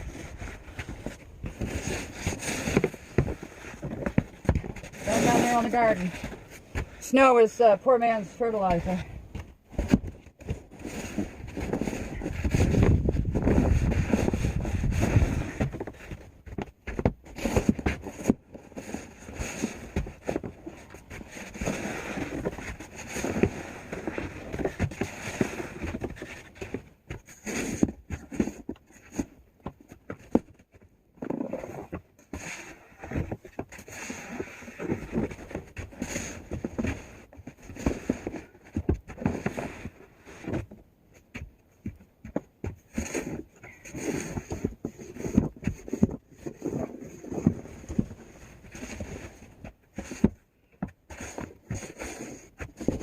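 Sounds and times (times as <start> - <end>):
snow shovel scraping wet snow: 4.9 - 6.2, 7.0 - 9.0.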